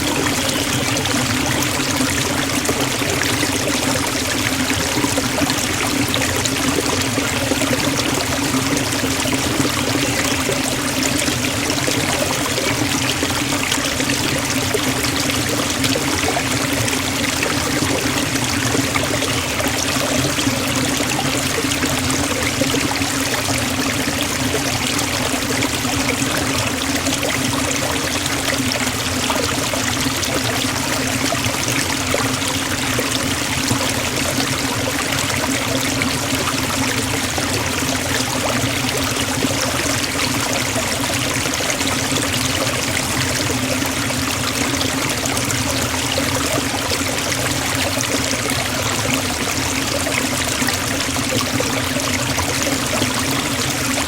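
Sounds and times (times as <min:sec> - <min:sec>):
waterfall pouring into pool: 0:00.0 - 0:54.0.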